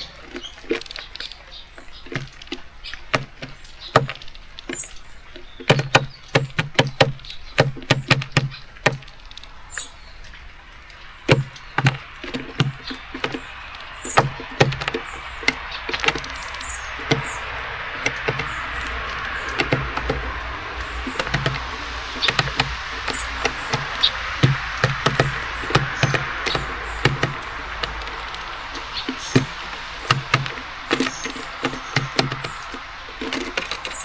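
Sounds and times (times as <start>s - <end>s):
birds tapping and pecking at feeder: 0.0s - 34.0s
high bird chirps: 2.8s - 34.0s
rain hissing: 8.6s - 34.0s.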